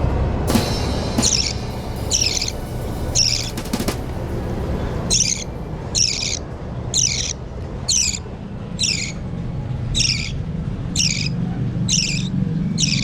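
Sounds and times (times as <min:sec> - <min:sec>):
low hum: 0:00.0 - 0:13.0
bird chick scratchy calls: 0:02.1 - 0:02.5, 0:05.1 - 0:05.4, 0:06.0 - 0:06.4, 0:07.0 - 0:08.2, 0:08.8 - 0:09.2, 0:10.0 - 0:10.4, 0:11.0 - 0:13.0.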